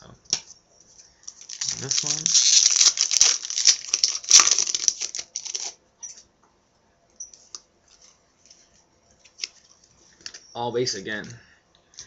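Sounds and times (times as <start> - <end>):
wrapper crinkling and tearing: 1.2 - 5.8.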